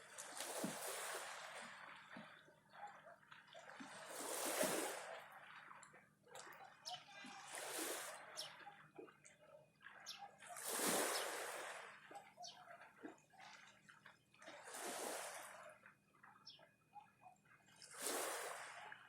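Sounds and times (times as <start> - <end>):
small waves washing ashore: 0.0 - 2.5, 3.8 - 5.8, 7.2 - 8.5, 10.0 - 12.5, 14.5 - 15.8, 17.9 - 19.0
water trickling and dripping: 5.1 - 7.5, 8.1 - 10.4.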